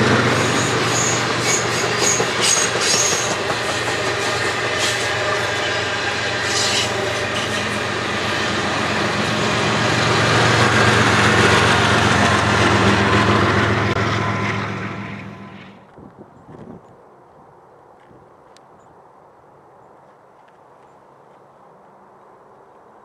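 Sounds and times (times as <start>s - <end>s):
train cars rolling on rails: 0.0s - 16.0s
diesel locomotive engine hum: 0.0s - 16.9s
high wheel squeals: 0.3s - 8.0s.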